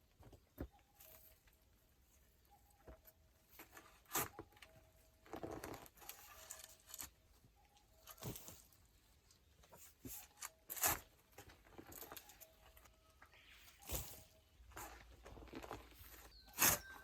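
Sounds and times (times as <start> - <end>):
digging in soil and stone: 3.5 - 17.0
scraping rustle: 9.6 - 17.0.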